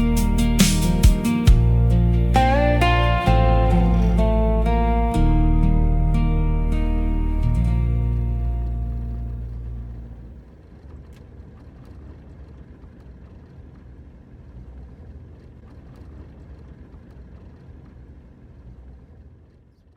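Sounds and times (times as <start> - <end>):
closing music: 0.0 - 10.2
vehicle rumble: 0.0 - 19.6.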